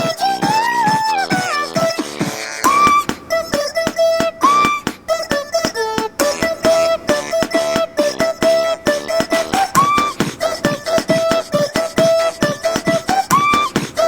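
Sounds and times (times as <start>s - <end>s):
drum-like clicks and claps: 0.0s - 14.0s
rubber chicken squeaky notes: 2.6s - 3.1s, 4.4s - 4.9s, 9.7s - 10.2s, 13.2s - 13.8s.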